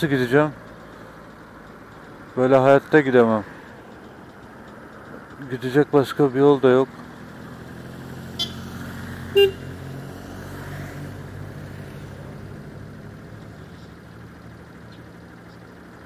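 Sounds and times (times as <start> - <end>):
motorcycle engine idling: 0.0 - 10.4, 11.2 - 16.0.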